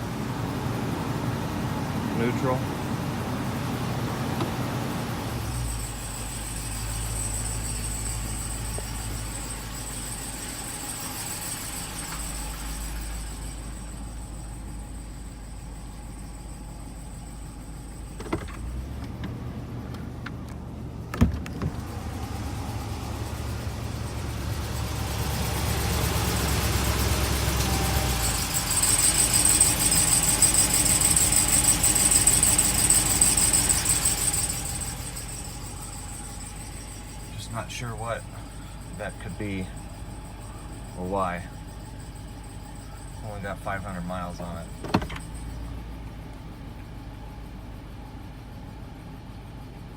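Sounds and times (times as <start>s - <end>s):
high-pitched whine: 0.0s - 19.4s, 20.8s - 49.9s
engine idling: 0.0s - 49.9s
high-pitched chirping squeal: 5.4s - 17.9s, 22.9s - 45.9s.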